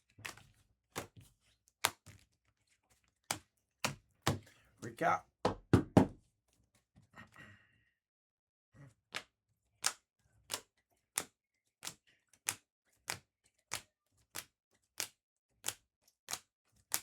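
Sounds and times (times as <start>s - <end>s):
cards clicking on a table: 9.1s - 17.0s.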